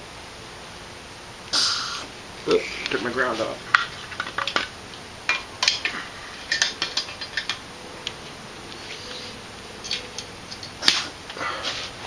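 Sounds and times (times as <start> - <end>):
metallic clinks of steel parts: 9.8 - 11.0.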